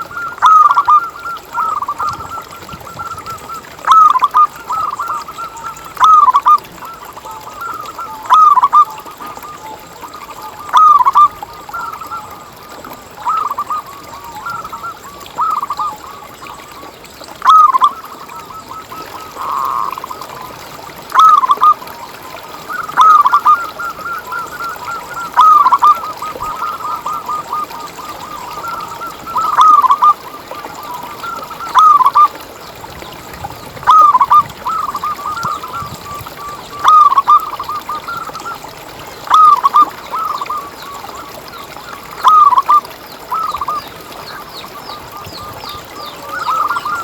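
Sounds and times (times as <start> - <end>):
dove cooing: 0.0 - 6.6, 22.7 - 32.4, 33.8 - 38.5, 39.3 - 40.4.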